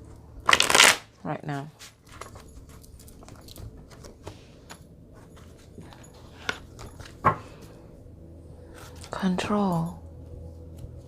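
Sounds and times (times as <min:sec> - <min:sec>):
cards being shuffled: 0:00.5 - 0:01.1.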